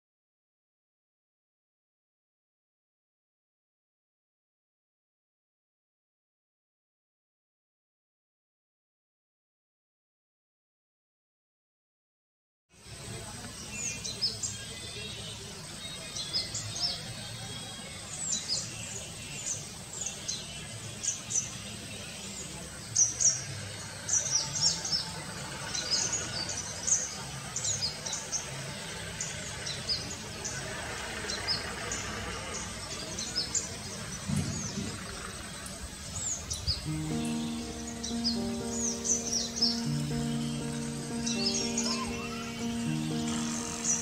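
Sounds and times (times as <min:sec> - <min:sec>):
low outdoor background hiss: 0:12.7 - 0:44.0
birds chirping: 0:12.8 - 0:44.0
background music: 0:36.8 - 0:44.0.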